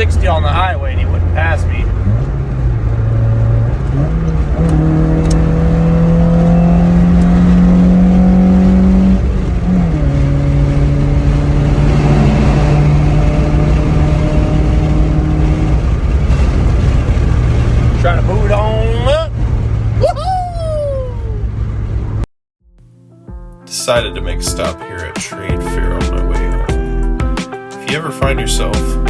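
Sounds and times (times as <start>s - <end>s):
car engine accelerating hard: 0.0s - 22.2s.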